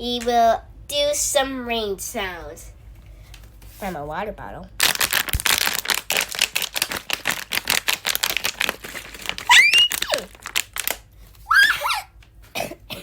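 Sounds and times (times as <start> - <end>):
plastic bottle crinkling: 4.8 - 11.5.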